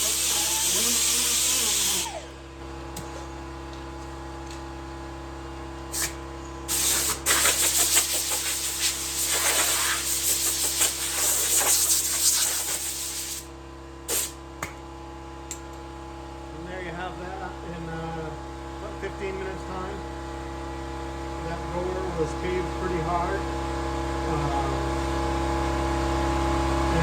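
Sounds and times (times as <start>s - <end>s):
compressed air hissing: 0.0s - 2.3s, 5.9s - 13.5s, 14.1s - 14.4s
steady hum: 0.0s - 14.8s.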